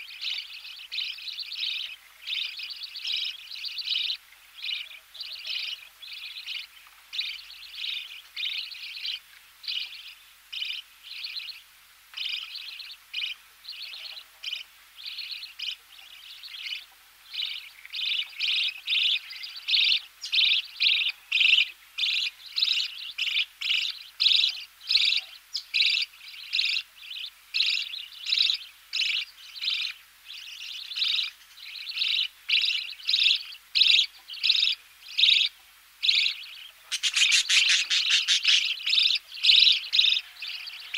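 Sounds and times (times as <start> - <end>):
bird chicks chirping: 0.0 - 40.9.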